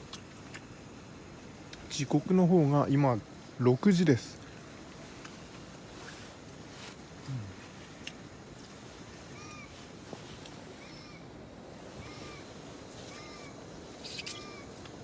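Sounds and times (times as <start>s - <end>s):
distant pheasant calling: 9.2s - 10.1s, 10.7s - 14.9s.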